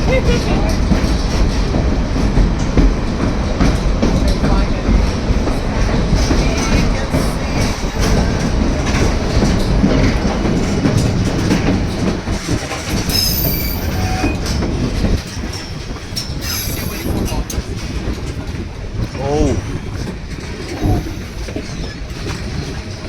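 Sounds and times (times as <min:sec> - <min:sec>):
train wheels rattling over rails: 0:00.0 - 0:23.0
high wheel squeals: 0:13.1 - 0:14.9, 0:16.2 - 0:17.4, 0:20.7 - 0:22.5.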